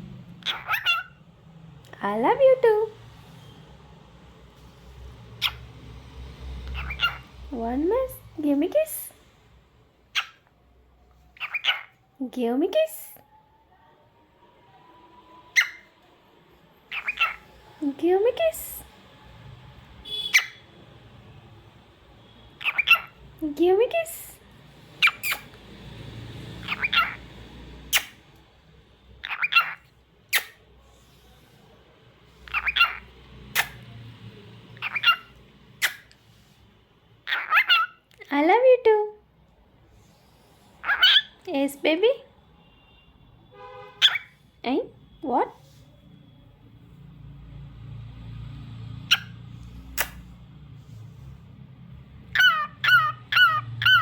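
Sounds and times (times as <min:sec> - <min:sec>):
cockatiel chirping and whistling: 0:52.4 - 0:54.0.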